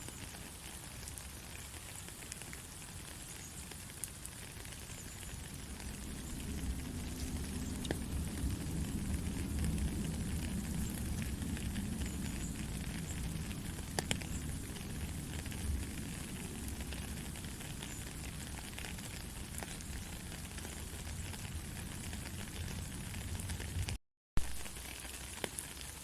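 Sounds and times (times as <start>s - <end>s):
rain hissing: 0.0s - 26.0s
raindrop ticks: 0.0s - 26.0s
low rumble: 5.5s - 17.4s.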